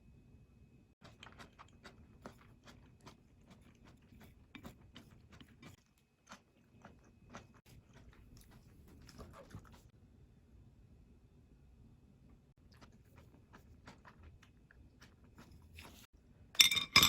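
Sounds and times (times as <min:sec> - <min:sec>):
chewing and biting food: 0:01.0 - 0:09.9, 0:12.6 - 0:16.1.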